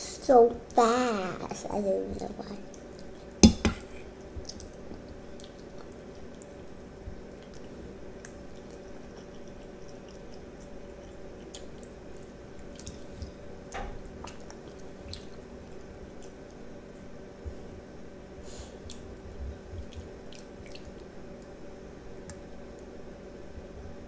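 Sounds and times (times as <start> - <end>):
faint steady hum: 0.0 - 24.0
child chewing and slurping: 2.2 - 16.6
wet mouth clicks: 7.4 - 13.1.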